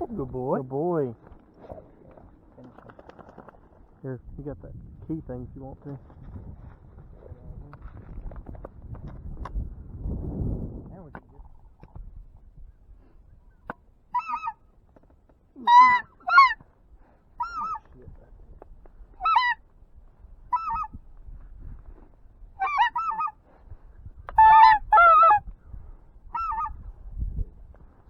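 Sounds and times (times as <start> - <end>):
goose honking: 14.1 - 14.6, 15.6 - 16.6, 17.4 - 17.9, 19.2 - 19.6, 20.5 - 20.9, 22.6 - 23.4, 24.4 - 25.4, 26.3 - 26.8.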